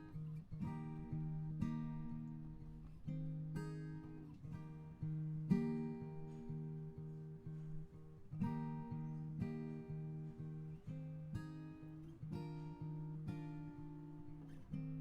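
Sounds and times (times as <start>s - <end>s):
acoustic guitar picking: 0.0s - 15.0s.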